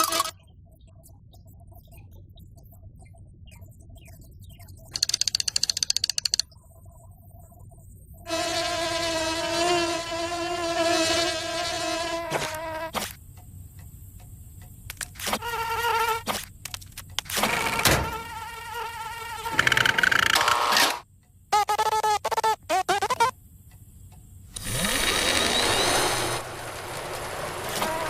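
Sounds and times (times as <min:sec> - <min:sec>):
cartoon insect buzzing: 0:08.3 - 0:13.2, 0:15.1 - 0:16.4, 0:17.2 - 0:23.3.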